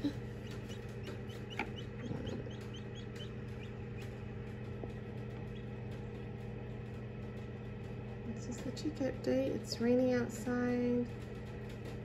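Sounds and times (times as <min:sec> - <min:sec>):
chicks peeping: 0:00.0 - 0:04.2, 0:04.9 - 0:06.0
low hum: 0:00.0 - 0:09.9.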